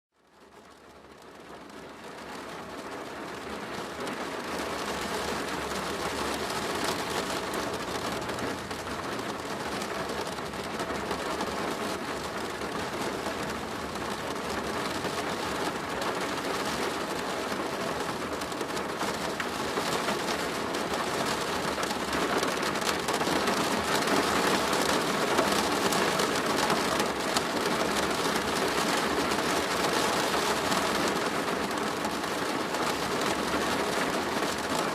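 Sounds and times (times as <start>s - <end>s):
rain drumming on plastic roof: 0.2s - 34.9s.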